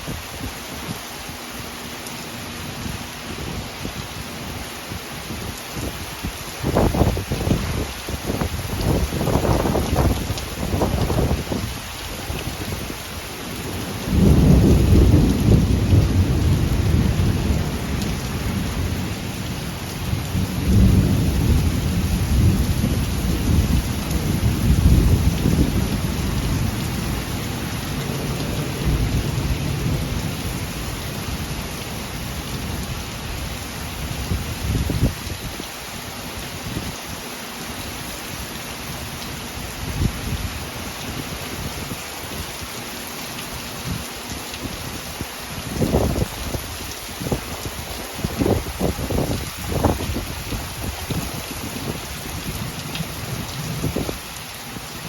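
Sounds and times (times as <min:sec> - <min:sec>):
heavy rain hissing: 0:00.0 - 0:55.0
thunder rumbling: 0:06.6 - 0:12.9, 0:13.6 - 0:32.9.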